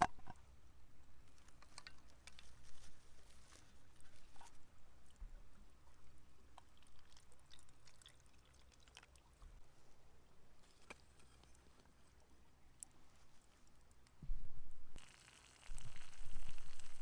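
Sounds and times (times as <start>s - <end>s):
campfire crackling: 15.0s - 17.0s.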